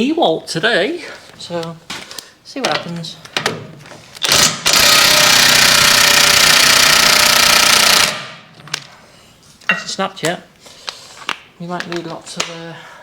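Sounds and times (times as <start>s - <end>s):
impact wrench hammering on a bolt: 4.3s - 8.5s.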